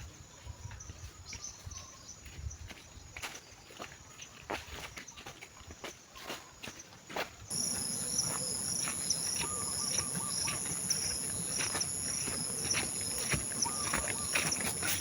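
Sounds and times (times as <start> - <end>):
insect chirps: 7.5 - 15.0
insects shrilling: 7.5 - 15.0.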